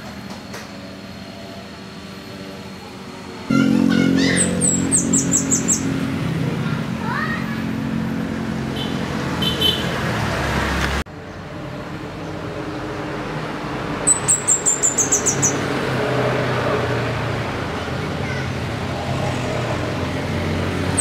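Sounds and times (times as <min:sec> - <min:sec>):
bird calling high thin notes: 0:03.5 - 0:06.2.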